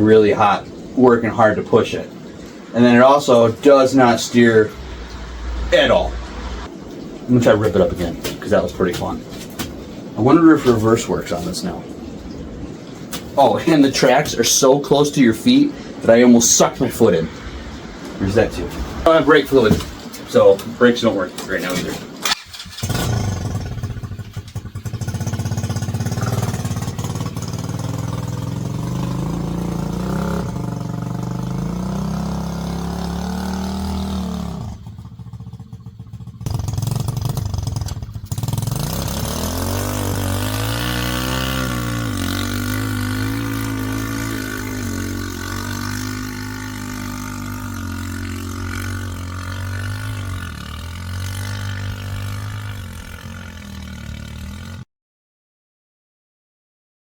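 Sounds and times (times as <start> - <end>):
small engine revving: 21.6 - 54.8.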